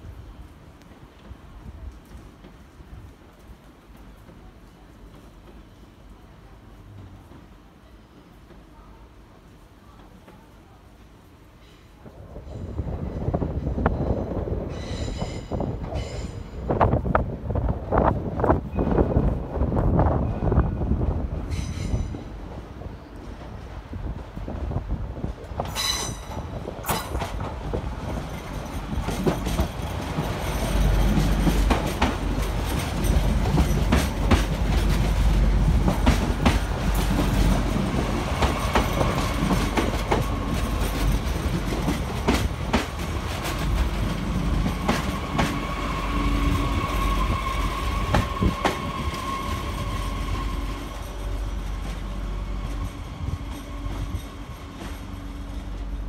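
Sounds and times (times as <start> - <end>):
train rumble: 0.0 - 56.0
train wheel squeal: 11.6 - 16.8, 21.5 - 22.4, 25.7 - 27.3, 44.8 - 51.4.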